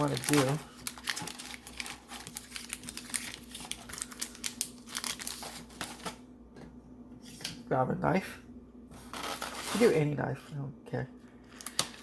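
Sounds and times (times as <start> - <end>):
wrapper crinkling and tearing: 0.0 - 6.2, 11.4 - 12.0.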